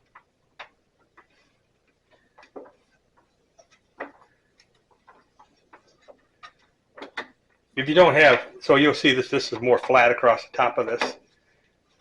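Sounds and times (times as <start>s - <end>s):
hands clicking and tapping: 0.0s - 8.4s.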